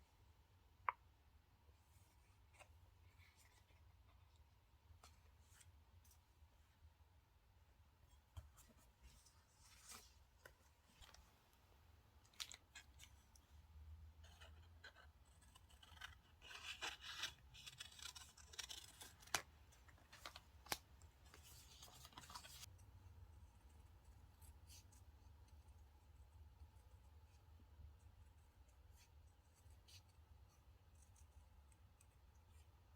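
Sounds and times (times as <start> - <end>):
scissors cutting paper: 14.2 - 19.5.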